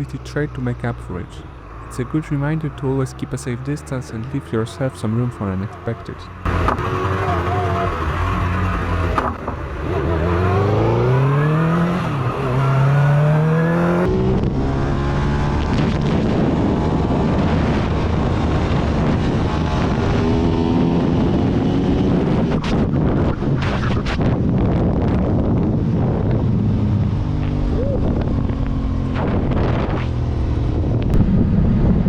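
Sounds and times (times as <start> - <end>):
motorcycle engine accelerating: 0.0 - 32.0
wind rush: 14.1 - 32.0.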